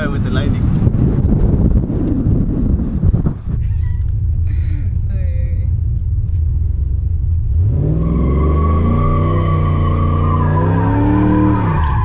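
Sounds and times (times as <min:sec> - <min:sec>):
pickup engine revving hard: 0:07.6 - 0:12.0
tires squealing on pavement: 0:07.8 - 0:12.0.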